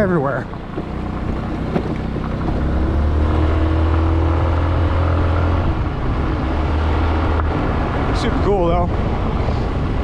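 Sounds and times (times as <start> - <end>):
scooter engine running: 0.3 - 2.9.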